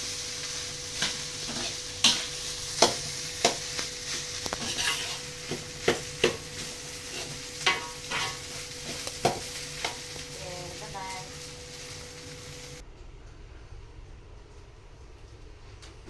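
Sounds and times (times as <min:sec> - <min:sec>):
fried rice sizzling in a pan: 0:00.0 - 0:12.8
metal spatula scraping a pan: 0:00.5 - 0:10.0.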